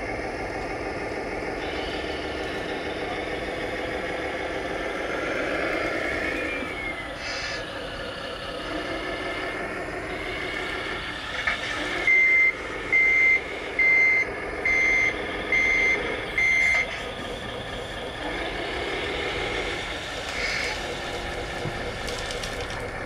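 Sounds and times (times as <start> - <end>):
steady running noise: 0.0 - 23.0
high reversing beeps: 11.9 - 17.0.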